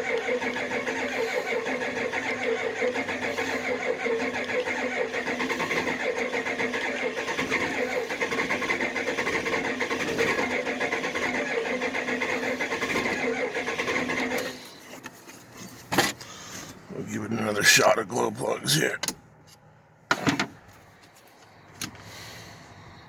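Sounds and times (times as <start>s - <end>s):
starter cranking diesel engine: 0.0s - 15.1s.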